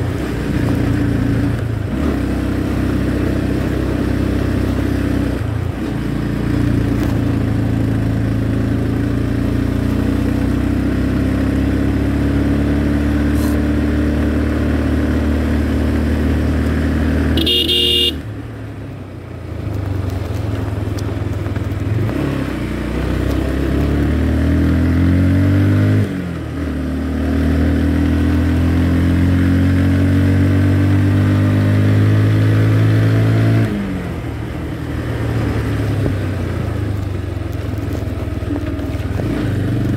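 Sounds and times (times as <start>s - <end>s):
motorcycle engine: 0.0s - 39.9s
horn beep: 17.4s - 18.2s.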